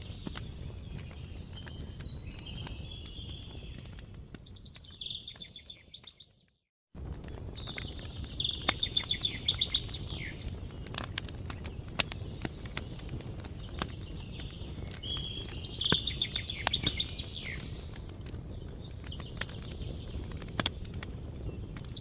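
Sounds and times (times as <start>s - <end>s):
campfire crackling: 0.0s - 6.3s, 6.9s - 22.0s
songbird trilling: 7.9s - 10.4s, 15.0s - 17.7s.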